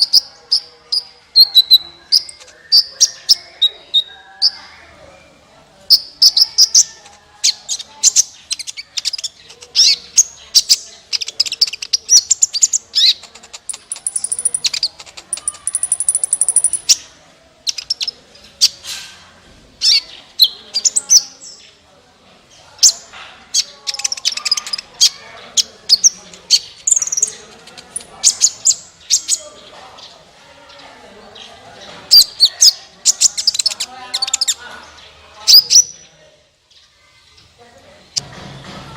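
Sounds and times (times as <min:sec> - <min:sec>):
bird chirping and twittering: 0:00.0 - 0:18.8, 0:19.8 - 0:21.8, 0:22.4 - 0:38.2.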